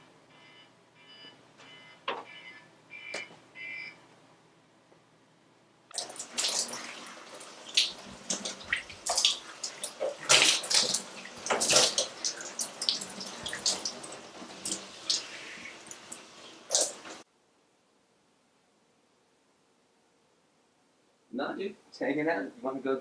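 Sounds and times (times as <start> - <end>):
water splashing and running: 5.9 - 17.2.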